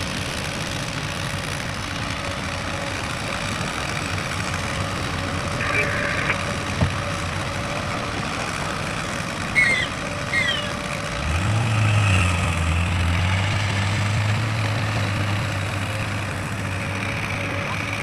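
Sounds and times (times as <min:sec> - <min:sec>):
deep steady engine note: 0:00.0 - 0:18.0
heavy vehicle engine running: 0:00.0 - 0:18.0
short high squeaks falling in pitch: 0:09.6 - 0:10.7.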